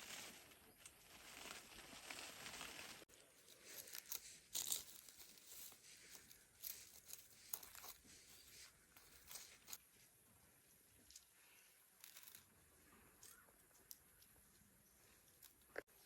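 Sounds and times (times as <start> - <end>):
rustling and crinkling handling: 0.0 - 10.1
crisp scrapes or crunches: 1.1 - 9.8.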